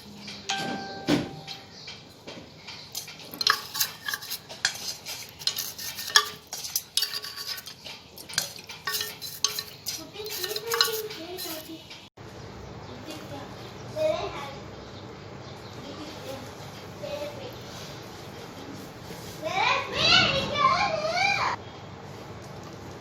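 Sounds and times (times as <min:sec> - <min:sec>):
metal objects clinking and scraping: 0:02.8 - 0:12.0.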